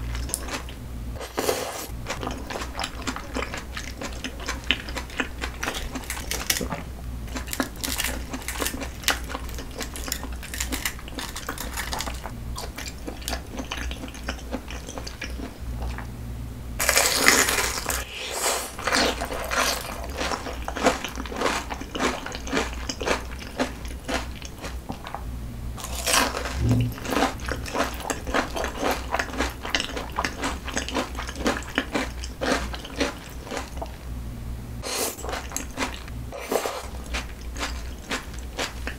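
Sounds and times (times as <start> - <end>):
crunchy chewing: 0.0 - 16.1, 16.8 - 25.2, 25.8 - 34.0, 34.8 - 38.9.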